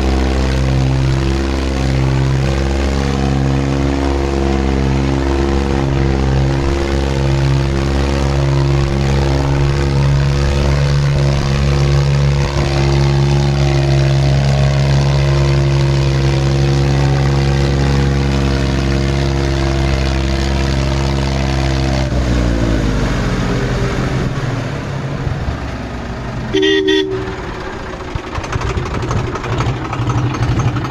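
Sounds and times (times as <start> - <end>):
tractor diesel engine straining: 23.7 - 30.9.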